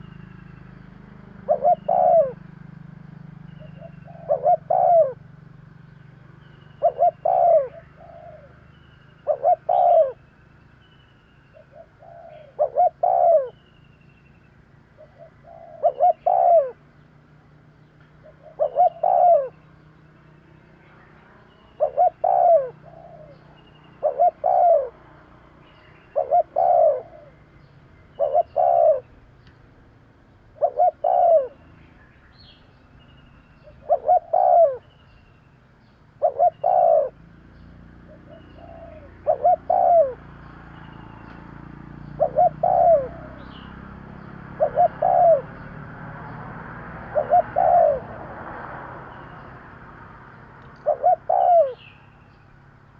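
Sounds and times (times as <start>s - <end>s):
dove cooing: 0.0s - 5.5s, 6.3s - 10.3s, 11.5s - 13.6s, 15.0s - 16.9s, 18.2s - 19.9s, 20.8s - 29.3s, 30.4s - 31.7s, 33.5s - 35.0s, 36.1s - 37.3s, 38.0s - 41.3s, 42.0s - 48.4s, 50.7s - 52.0s.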